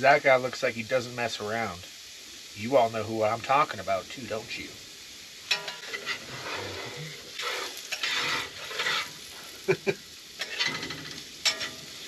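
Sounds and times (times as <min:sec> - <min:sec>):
potatoes sizzling in a pan: 0:00.0 - 0:12.0
stirring in a pan: 0:05.4 - 0:12.0.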